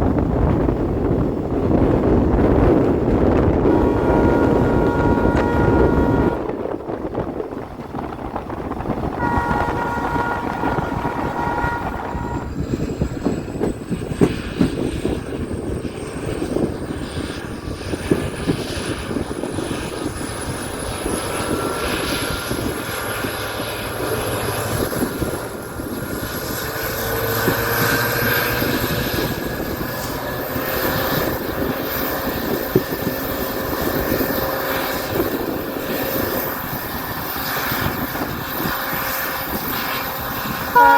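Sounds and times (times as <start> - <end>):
train wheels rumbling on rails: 0.0 - 40.9
rail clicks: 1.1 - 40.9
locomotive horn chord: 3.6 - 6.6, 9.2 - 12.7.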